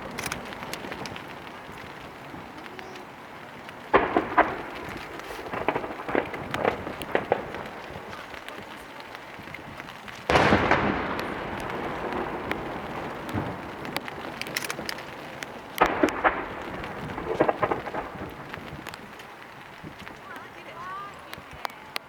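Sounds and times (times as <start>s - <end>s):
firework shells booming: 0.0s - 21.7s
firework crackles: 0.0s - 22.0s.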